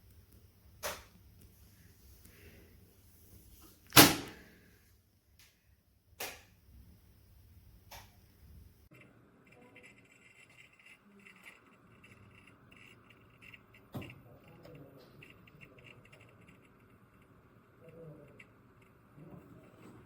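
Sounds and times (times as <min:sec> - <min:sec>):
sharp click: 0:00.8 - 0:01.1, 0:06.2 - 0:06.5.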